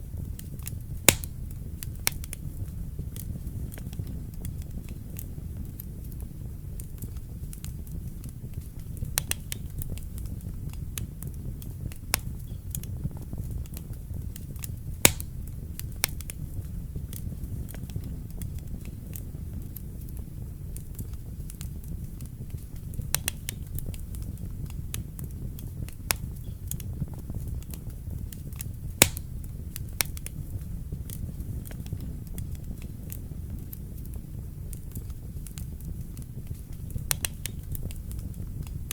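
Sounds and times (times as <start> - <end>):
wood fire burning: 0.0 - 38.9.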